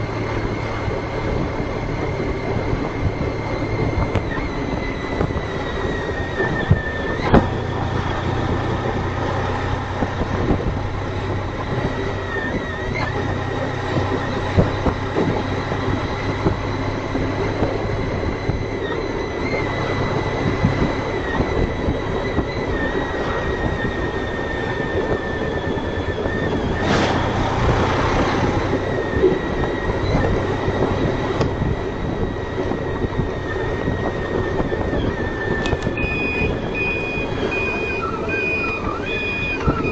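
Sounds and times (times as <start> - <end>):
motorcycle engine and road noise: 0.0 - 39.9
rush of noise: 26.5 - 31.7.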